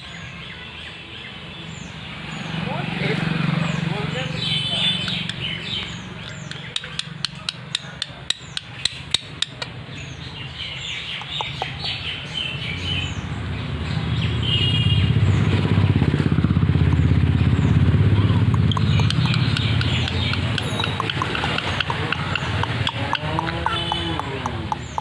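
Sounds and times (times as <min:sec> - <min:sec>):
birds chirping: 0:00.0 - 0:25.0
sharp taps: 0:05.0 - 0:09.8, 0:18.4 - 0:25.0
low pulsing engine rumble: 0:15.1 - 0:25.0.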